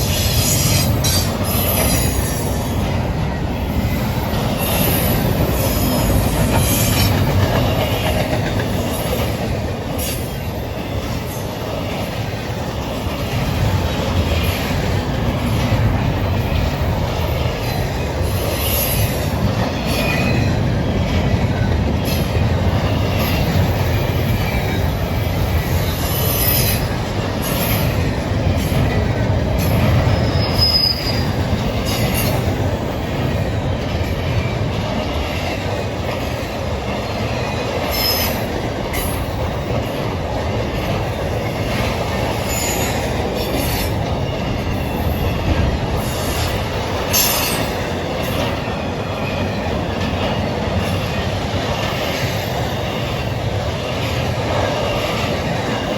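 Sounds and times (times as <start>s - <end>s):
train cars rumbling past: 0.0s - 55.9s
wheel squeals: 29.9s - 32.4s.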